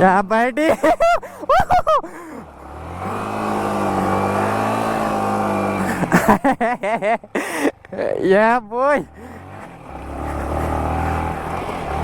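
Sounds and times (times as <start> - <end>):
motorcycle engine revving: 2.2 - 8.2, 9.1 - 12.0.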